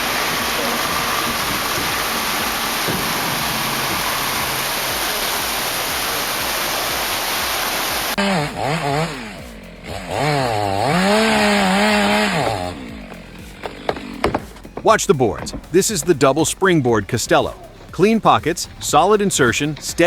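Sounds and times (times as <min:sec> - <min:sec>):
steady rushing noise: 0:00.0 - 0:08.2
chainsaw cutting: 0:00.0 - 0:16.8.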